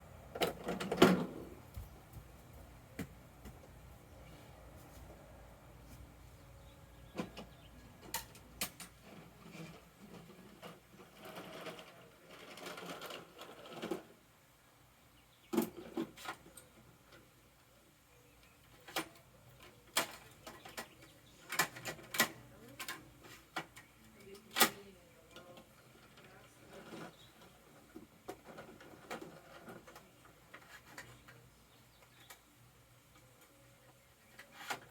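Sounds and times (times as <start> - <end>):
plastic rattling and rustling: 18.7 - 31.5
plastic toy truck clicks and knocks: 19.9 - 24.8.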